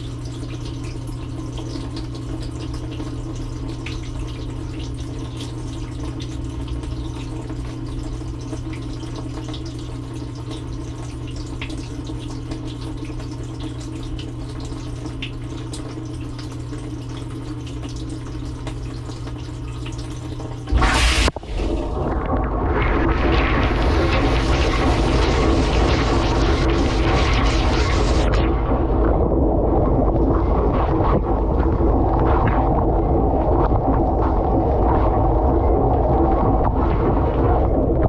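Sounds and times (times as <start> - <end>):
water trickling and splashing: 0.0 - 28.4
dishwasher hum: 16.9 - 38.0
water spraying: 20.6 - 28.4
loud rush of water: 20.7 - 28.4.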